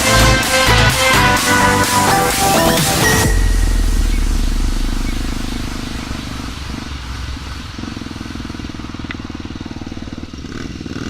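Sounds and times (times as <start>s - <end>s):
motorcycle engine running: 3.1s - 11.0s.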